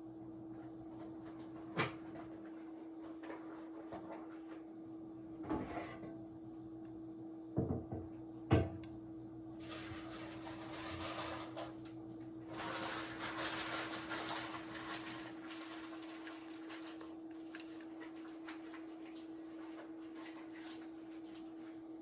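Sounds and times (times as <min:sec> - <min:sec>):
scraping and rustling: 0:09.6 - 0:11.8.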